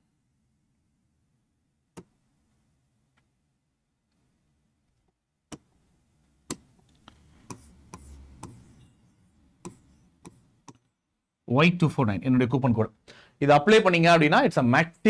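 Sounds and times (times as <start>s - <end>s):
sharp clicks and taps: 9.6s - 10.9s.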